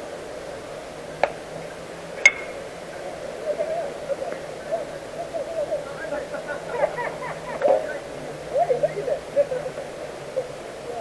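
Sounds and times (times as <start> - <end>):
faint voices calling out: 0.0 - 11.0
baseball bat cracks: 2.2 - 2.6.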